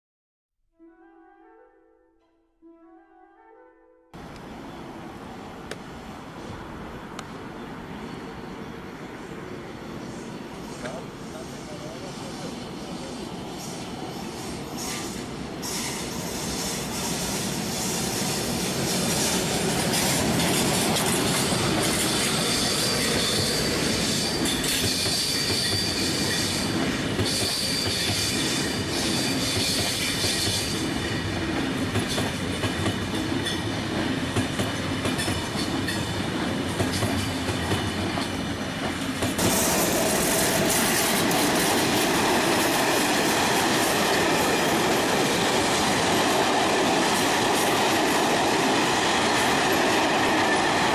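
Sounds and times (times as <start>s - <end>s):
train wheels rumbling on rails: 5.2s - 50.9s
high-pitched squeal: 11.4s - 30.5s
wheels clicking over rail joints: 29.5s - 50.9s.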